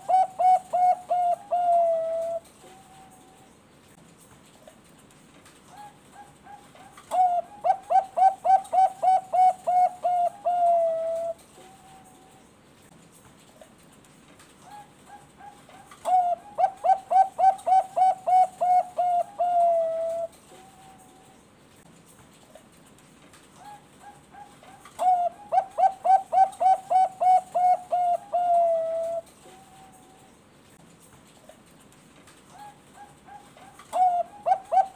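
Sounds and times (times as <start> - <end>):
dove cooing: 0.0 - 3.4, 5.8 - 12.2, 14.6 - 21.3, 23.6 - 30.3, 32.5 - 34.9.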